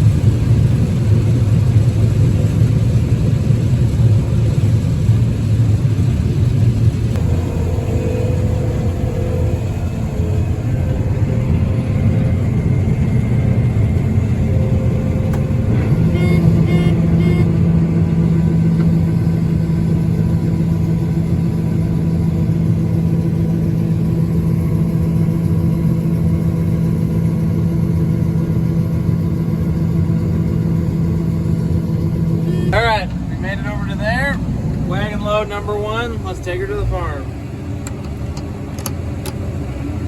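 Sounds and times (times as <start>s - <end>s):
steady low hum: 0.0s - 38.7s
diesel engine running: 0.0s - 40.0s
short beeps: 16.1s - 17.5s, 32.4s - 32.8s.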